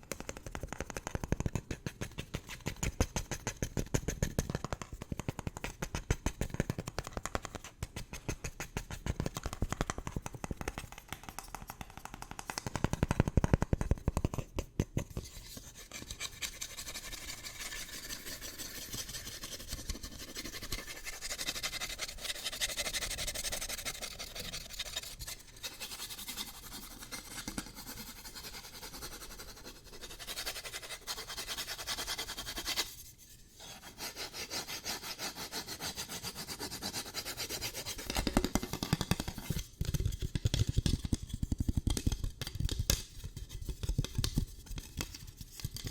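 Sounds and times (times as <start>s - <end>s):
fast tapping on an object: 0.0s - 15.3s, 36.0s - 45.9s.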